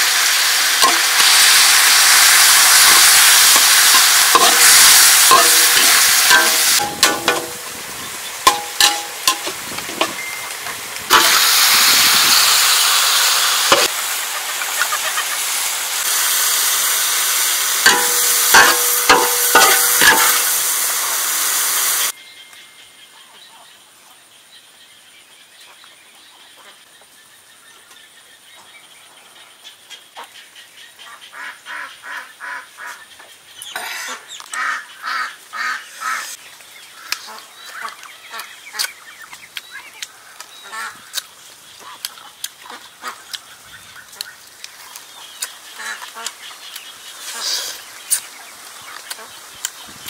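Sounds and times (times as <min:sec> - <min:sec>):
farmyard birds calling: 0:00.4 - 0:15.7, 0:25.5 - 0:50.0.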